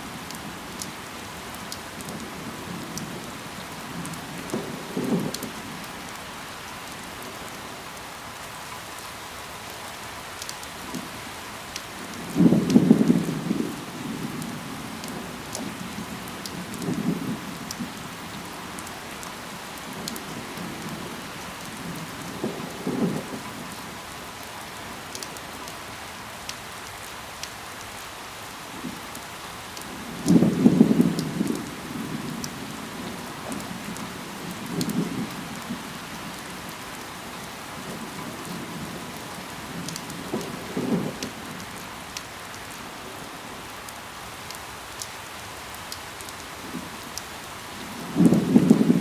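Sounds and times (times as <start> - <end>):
rain falling on leaves: 0.0 - 49.0.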